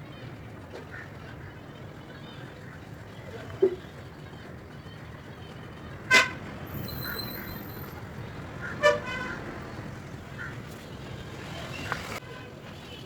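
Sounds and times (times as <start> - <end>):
faint chirps: 6.7 - 8.0
sharp horn toots: 8.8 - 9.4.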